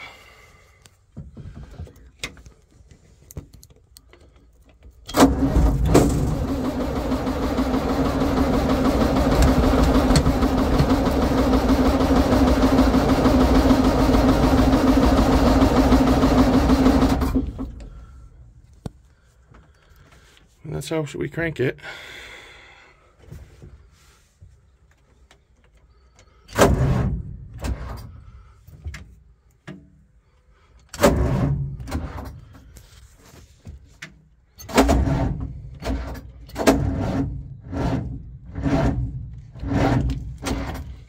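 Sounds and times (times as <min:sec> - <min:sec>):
truck engine cranking: 0:03.6 - 0:18.3, 0:30.8 - 0:32.7, 0:34.5 - 0:41.0
starter clunk: 0:05.1 - 0:17.9.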